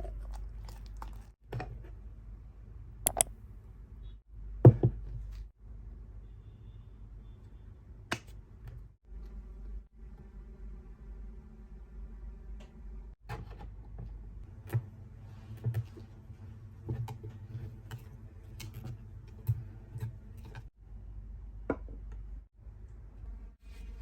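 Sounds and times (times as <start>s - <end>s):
light sharp clicks and taps: 3.1s - 3.3s.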